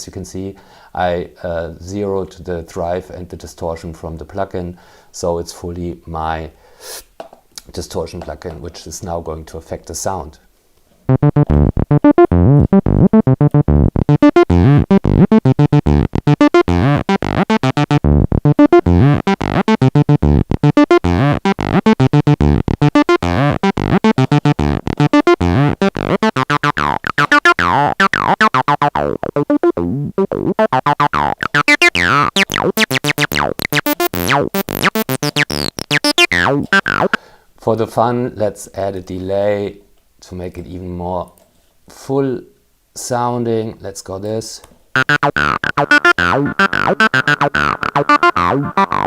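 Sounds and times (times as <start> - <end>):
distorted acid synth bassline: 11.1 - 37.2, 45.0 - 49.0.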